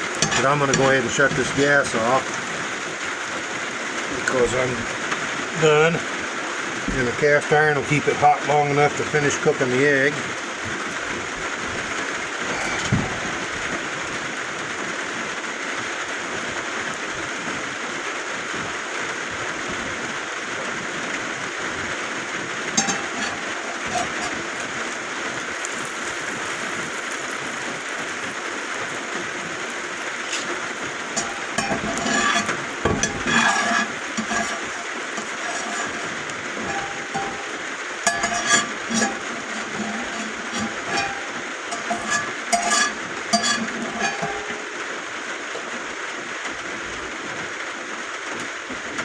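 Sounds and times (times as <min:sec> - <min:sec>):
metal cookware clinking: 0:00.0 - 0:02.6, 0:04.2 - 0:05.8, 0:12.4 - 0:13.6, 0:22.6 - 0:44.9
rain on roof: 0:00.0 - 0:22.8, 0:23.5 - 0:33.2, 0:33.8 - 0:36.7, 0:37.5 - 0:38.1, 0:41.3 - 0:41.8, 0:44.6 - 0:49.0.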